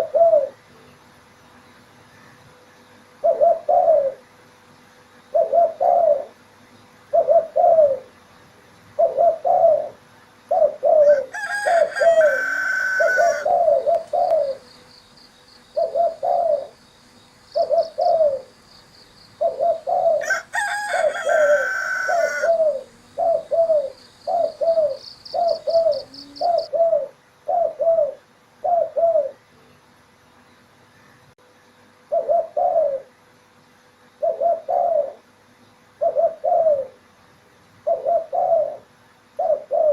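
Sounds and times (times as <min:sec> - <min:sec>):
dove cooing: 0:00.0 - 0:00.7, 0:03.2 - 0:04.3, 0:05.3 - 0:06.4, 0:07.1 - 0:08.2, 0:08.9 - 0:14.8, 0:15.6 - 0:16.8, 0:17.5 - 0:18.6, 0:19.2 - 0:29.4, 0:32.1 - 0:33.1, 0:34.2 - 0:35.3, 0:36.0 - 0:37.0, 0:37.8 - 0:39.9
rooster crowing: 0:11.0 - 0:13.9, 0:20.1 - 0:22.8
faint high pulsing chirp: 0:13.2 - 0:20.2, 0:21.4 - 0:29.8.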